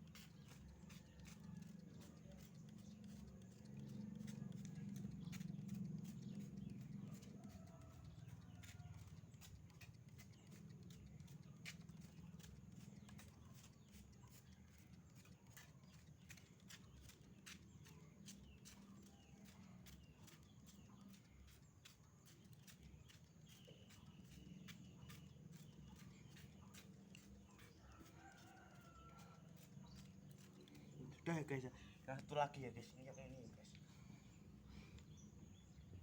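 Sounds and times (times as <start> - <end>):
spray bottle clicking and spraying: 0.0 - 6.2.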